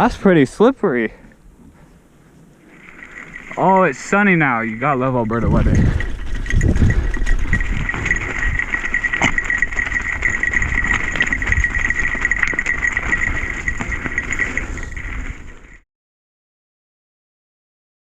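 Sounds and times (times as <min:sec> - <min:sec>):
bike tyres rumbling on trail: 0:02.6 - 0:15.8
wind on microphone: 0:04.7 - 0:15.8.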